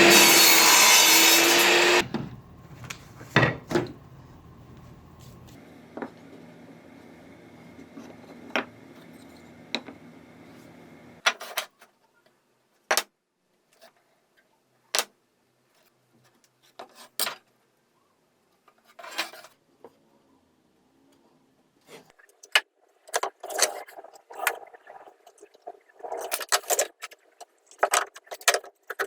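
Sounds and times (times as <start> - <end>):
steady background hum: 2.0 - 11.2
wooden pieces and tools clicking: 26.1 - 29.0.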